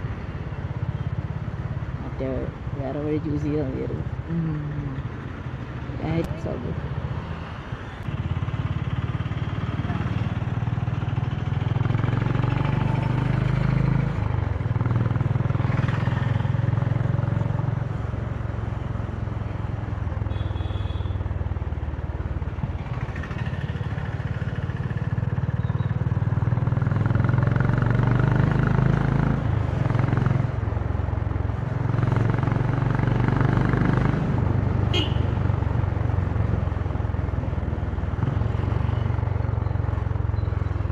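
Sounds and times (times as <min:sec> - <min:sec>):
motorcycle engine revving: 0:08.0 - 0:18.1, 0:22.6 - 0:30.7, 0:31.8 - 0:35.7.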